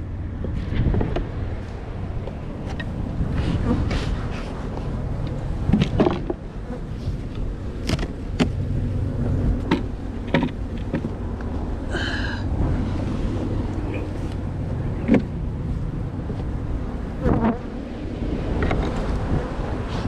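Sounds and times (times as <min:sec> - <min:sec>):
low rumble: 0:00.0 - 0:20.0
wooden hive boxes knocking: 0:05.7 - 0:06.5.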